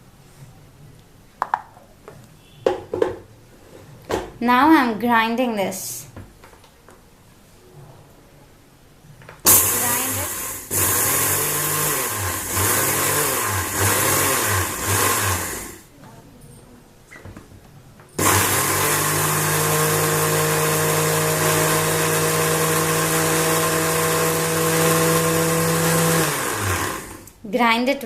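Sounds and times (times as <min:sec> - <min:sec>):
mixer grinder grinding seeds: 0:09.5 - 0:15.8, 0:18.2 - 0:27.4.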